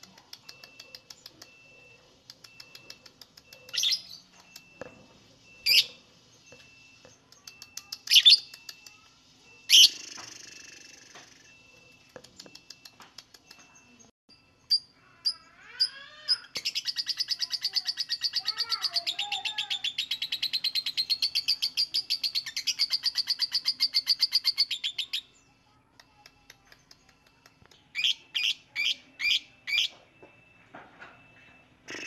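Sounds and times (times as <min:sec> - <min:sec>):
bird chirping and trilling: 0:00.4 - 0:04.8, 0:05.5 - 0:09.0, 0:09.6 - 0:11.1, 0:11.9 - 0:25.6, 0:27.8 - 0:30.0.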